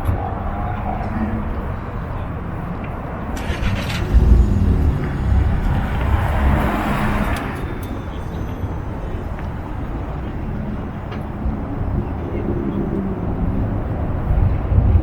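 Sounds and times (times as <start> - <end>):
car engine pulling away: 3.3 - 10.3.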